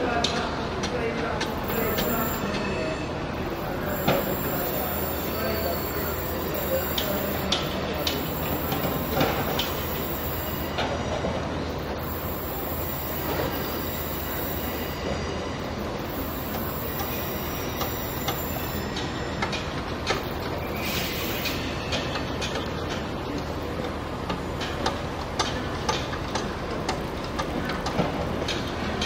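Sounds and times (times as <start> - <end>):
train clicks on track: 0.0 - 2.4, 3.7 - 15.2, 15.8 - 29.0
diesel train idling: 0.6 - 29.0
train wheel squeal: 1.6 - 22.9.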